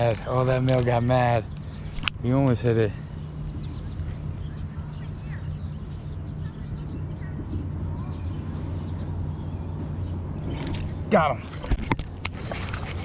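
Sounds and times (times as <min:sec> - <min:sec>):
small birds chirping: 0:00.0 - 0:11.6
steady low hum: 0:00.0 - 0:13.0.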